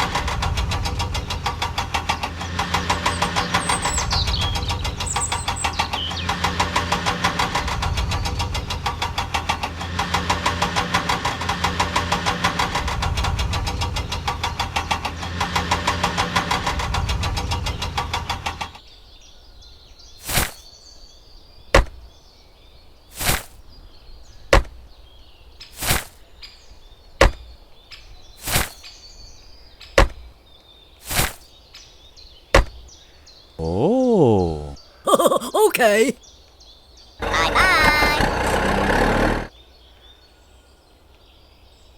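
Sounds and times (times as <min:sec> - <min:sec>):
small engine knocking: 0:38.2 - 0:39.5.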